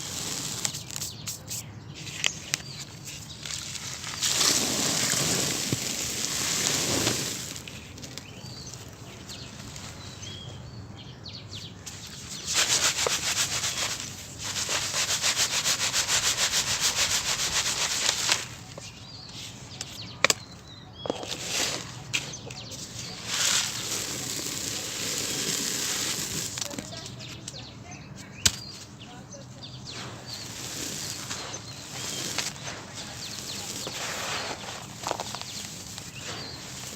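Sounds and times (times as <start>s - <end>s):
gritty crunching of cement: 0.0s - 10.7s, 11.8s - 36.9s.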